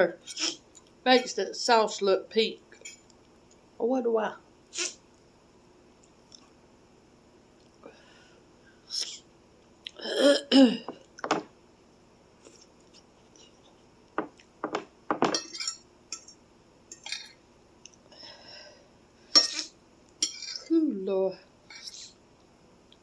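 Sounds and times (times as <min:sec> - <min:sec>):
person coughing: 0:10.0 - 0:11.0
utensil clinking against bowl: 0:15.2 - 0:17.4, 0:19.4 - 0:20.7.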